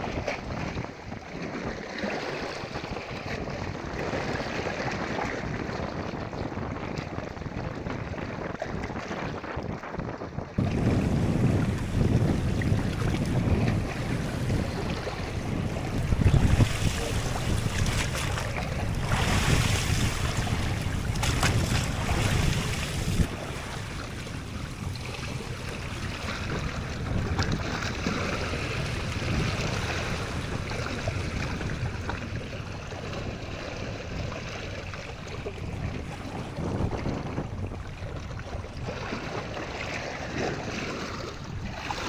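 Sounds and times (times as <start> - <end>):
wind buffeting microphone: 0.0 - 42.0
sea waves washing: 10.6 - 36.6.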